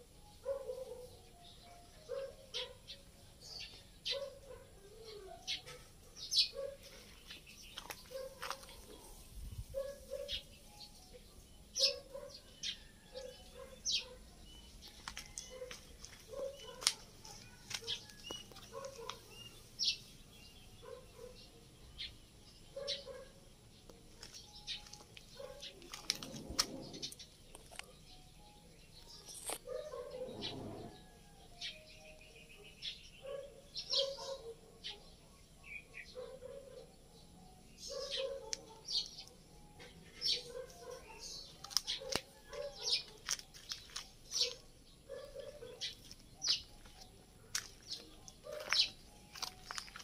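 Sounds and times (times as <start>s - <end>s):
small birds chirping: 0.0s - 50.0s
birds low calls: 37.8s - 50.0s.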